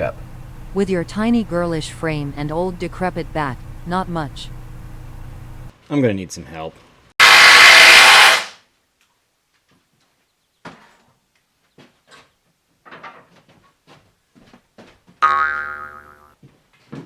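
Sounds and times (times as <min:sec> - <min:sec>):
loud hiss-like burst: 0:07.2 - 0:08.6
cartoon boing sound effect: 0:15.2 - 0:16.3.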